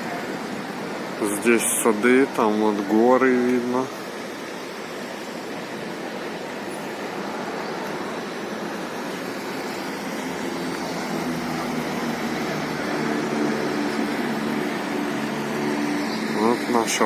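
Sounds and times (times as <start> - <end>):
steady rushing noise: 0.0 - 17.0
vehicle engine hum: 6.7 - 17.0.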